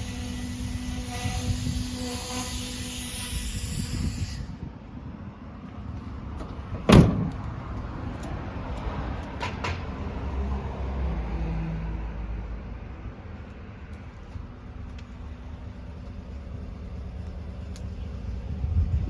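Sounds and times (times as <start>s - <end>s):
truck door thud: 6.4s - 7.6s.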